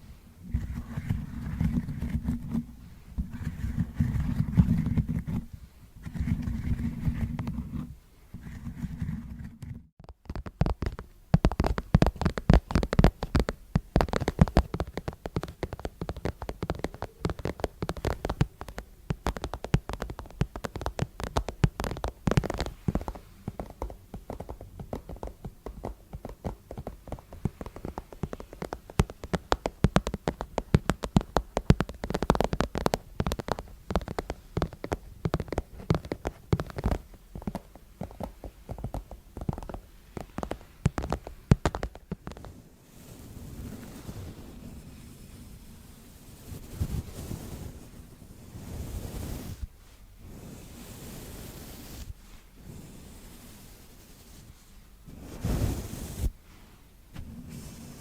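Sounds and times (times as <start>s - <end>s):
rapid clicking and tapping: 0.6s - 42.5s.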